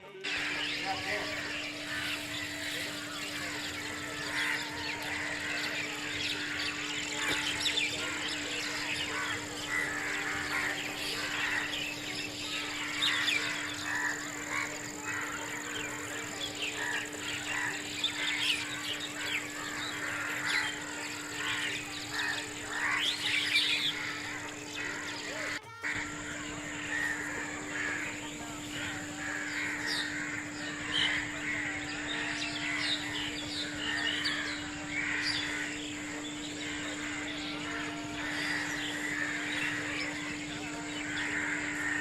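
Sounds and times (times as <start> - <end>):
small birds chirping: 0.0 - 42.0
steady high whine: 0.0 - 42.0
steady low hum: 0.0 - 42.0.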